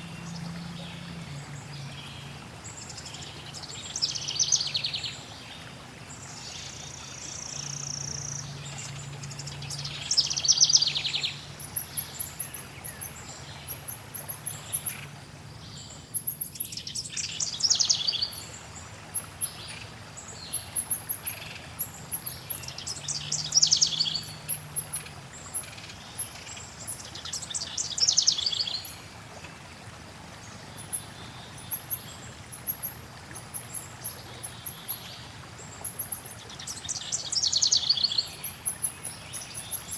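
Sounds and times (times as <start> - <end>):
flowing water hiss: 0.0 - 39.9
trilled birdsong: 19.2 - 29.0, 30.7 - 39.9.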